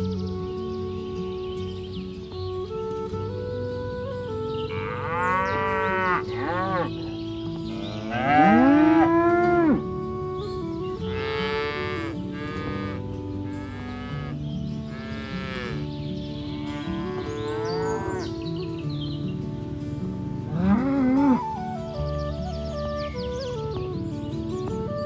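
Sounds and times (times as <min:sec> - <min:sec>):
soft background music: 0:00.0 - 0:25.0
cattle mooing: 0:04.7 - 0:07.1, 0:07.7 - 0:09.8, 0:11.1 - 0:15.8, 0:16.4 - 0:18.4, 0:20.5 - 0:21.6.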